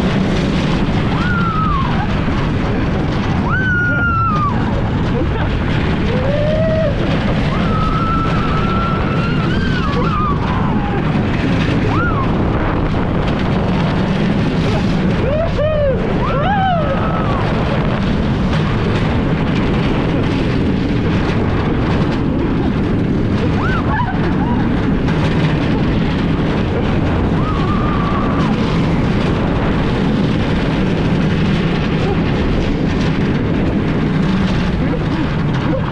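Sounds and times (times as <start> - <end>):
roller coaster train rumbling: 0.0 - 35.9
wind on microphone: 0.0 - 35.9
riders screaming: 1.0 - 2.3, 3.4 - 4.8, 6.0 - 12.4, 15.1 - 17.7, 23.5 - 24.8, 27.2 - 28.8.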